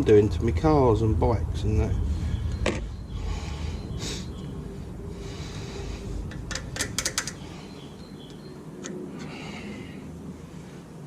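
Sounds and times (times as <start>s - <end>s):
hand tools clicking: 6.3s - 7.4s.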